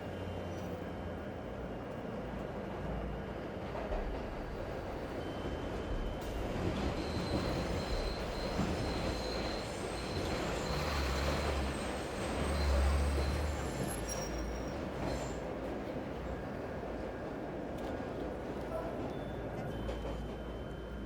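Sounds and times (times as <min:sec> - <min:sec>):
train passing rumble: 0:05.9 - 0:21.0.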